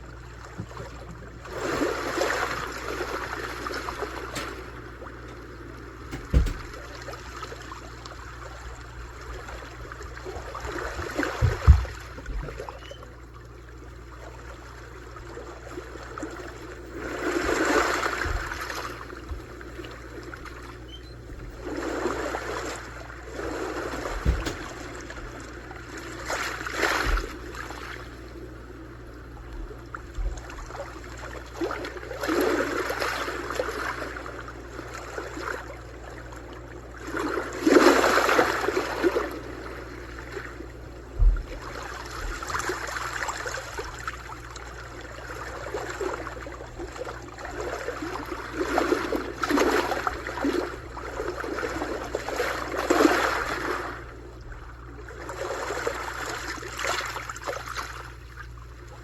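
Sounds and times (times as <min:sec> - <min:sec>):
sea waves washing in: 0:00.0 - 0:58.2
low thumps: 0:06.1 - 0:06.8, 0:17.5 - 0:19.8, 0:23.8 - 0:25.5.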